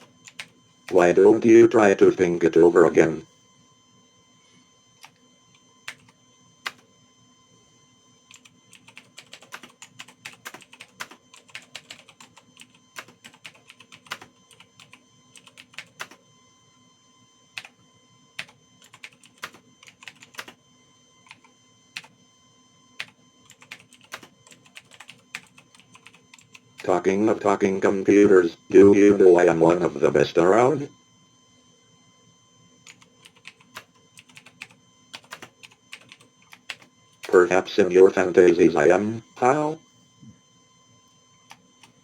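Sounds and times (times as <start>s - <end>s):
typing on computer keyboard: 0.0s - 1.0s, 5.9s - 6.8s, 8.3s - 16.2s, 18.4s - 20.6s, 23.0s - 26.8s, 32.8s - 37.4s.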